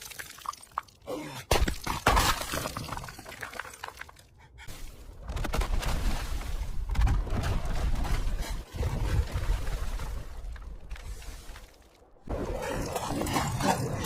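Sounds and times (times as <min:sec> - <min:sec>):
ice smashing and shattering: 0:01.5 - 0:04.0.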